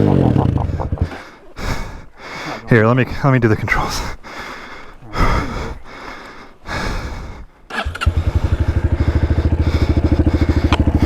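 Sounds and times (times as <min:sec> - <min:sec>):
dirt bike engine starting and idling: 0:07.7 - 0:11.0.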